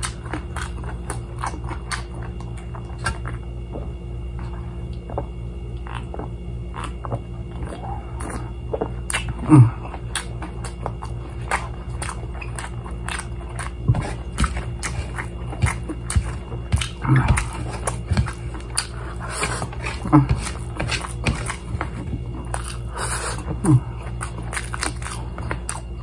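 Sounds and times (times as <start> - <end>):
biting and chewing crispy food: 0.0 - 26.0
steady low hum: 0.0 - 26.0
loud throat sound: 9.1 - 10.3, 16.8 - 18.1, 23.4 - 24.1.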